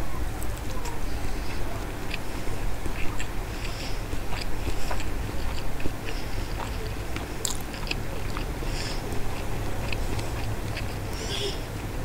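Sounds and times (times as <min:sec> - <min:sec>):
steady low hum: 0:00.0 - 0:12.0
close chewing mouth sounds: 0:00.5 - 0:12.0.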